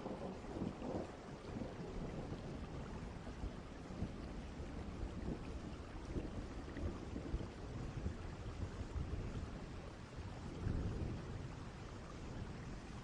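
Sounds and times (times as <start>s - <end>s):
distant thunder rumbling: 0.0s - 9.1s
faint rain hiss: 0.0s - 13.0s.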